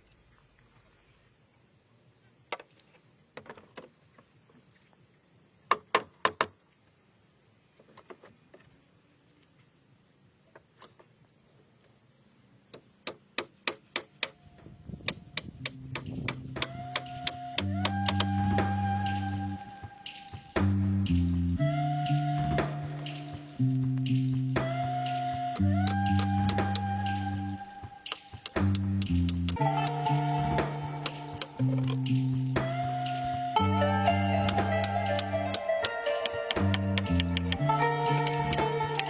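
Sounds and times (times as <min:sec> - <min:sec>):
tool striking bamboo: 0:15.1 - 0:19.1, 0:28.0 - 0:33.2
background music: 0:15.6 - 0:39.0.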